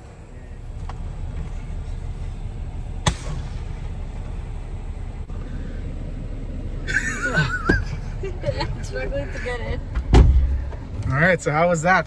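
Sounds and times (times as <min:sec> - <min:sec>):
low rumble: 0:00.0 - 0:12.0
sharp crack: 0:00.8 - 0:05.3.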